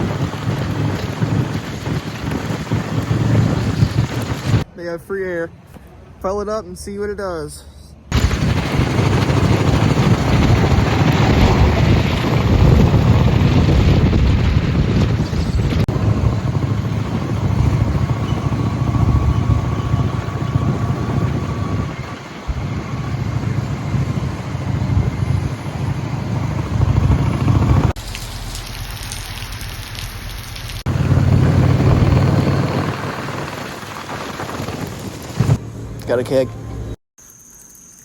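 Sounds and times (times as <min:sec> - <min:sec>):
wind buffeting on microphone: 0:00.0 - 0:04.7, 0:08.1 - 0:28.0, 0:30.7 - 0:35.6
road noise: 0:00.0 - 0:37.0
motorcycle engine: 0:08.1 - 0:28.0, 0:30.8 - 0:36.6.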